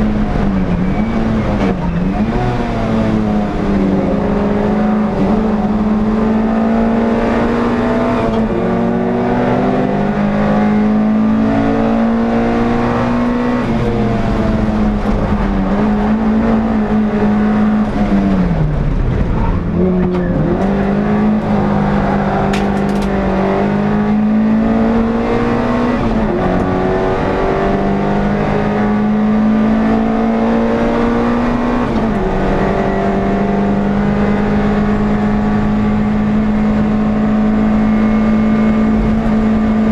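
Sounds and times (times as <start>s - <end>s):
racing car engine at high revs: 0.0s - 39.9s.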